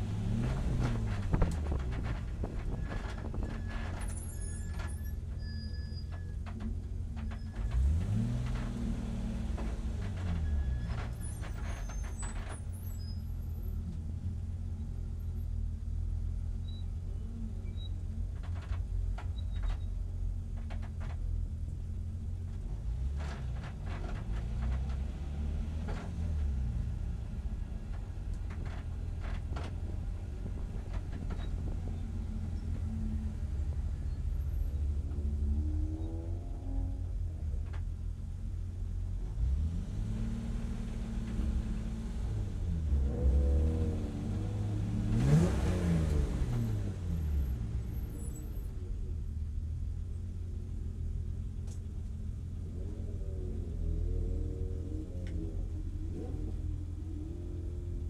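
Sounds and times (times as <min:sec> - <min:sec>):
clicks and rattles in car: 0:00.4 - 0:05.4, 0:18.1 - 0:25.1, 0:27.6 - 0:32.9.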